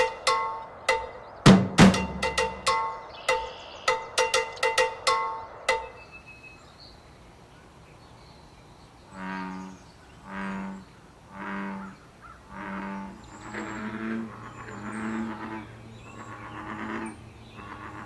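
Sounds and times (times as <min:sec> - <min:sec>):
drum music with pitched tones: 0:00.0 - 0:06.0
bullfrog calling: 0:09.2 - 0:18.0.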